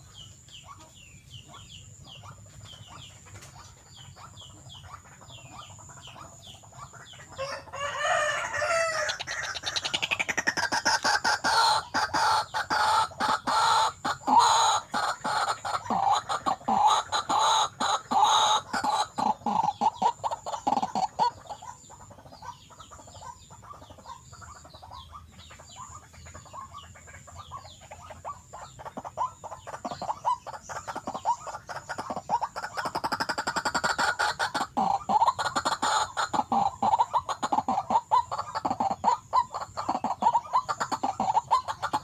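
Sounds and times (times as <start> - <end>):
waterhen clucking calls: 0.0 - 42.0.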